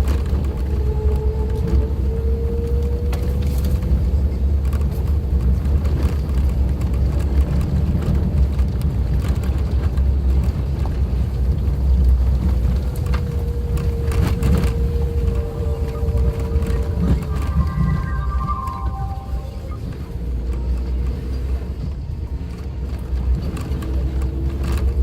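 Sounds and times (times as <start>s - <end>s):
car engine and road rumble: 0.0s - 25.0s
steady whine: 11.6s - 21.0s.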